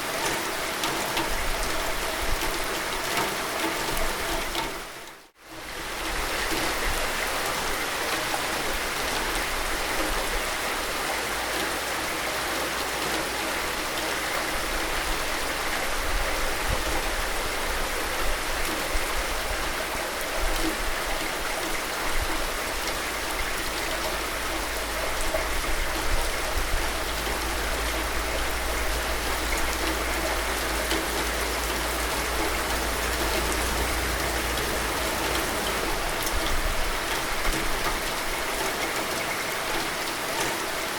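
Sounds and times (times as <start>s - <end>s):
steady rain falling: 0.0s - 40.9s
low rumble: 26.8s - 37.0s.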